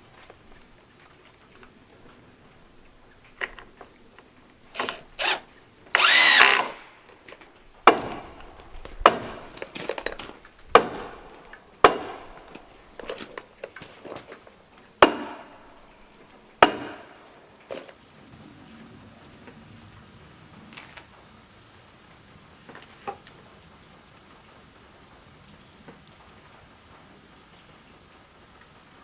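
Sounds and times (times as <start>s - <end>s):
power tool running: 4.7s - 7.2s
sharp knocks on wood: 7.8s - 13.2s, 15.0s - 15.5s, 16.6s - 17.2s.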